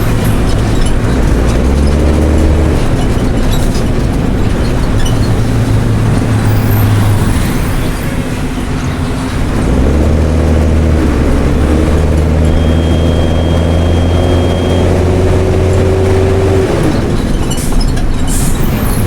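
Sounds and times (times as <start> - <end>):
bus diesel engine through exhaust: 0.0 - 19.0.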